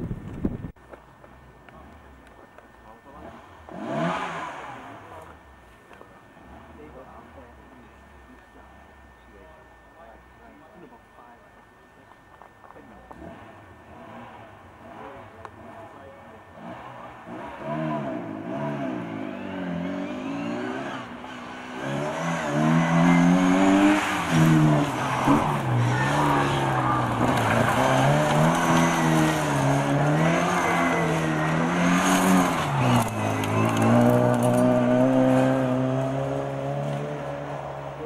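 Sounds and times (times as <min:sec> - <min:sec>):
car engine revving hard: 0:03.2 - 0:05.1, 0:16.5 - 0:38.0.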